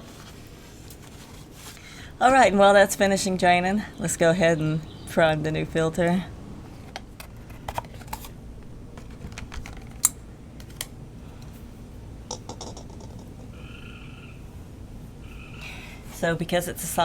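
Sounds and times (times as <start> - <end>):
hands handling bottle and filter: 6.8 - 11.6.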